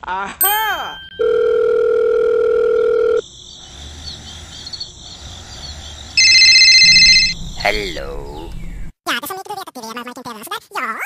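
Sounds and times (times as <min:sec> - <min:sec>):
telephone ringback tone: 0:00.4 - 0:03.2, 0:06.2 - 0:07.3
trilling phone ringtone: 0:00.4 - 0:03.2, 0:06.2 - 0:07.4
faint insect chirping: 0:02.8 - 0:08.5.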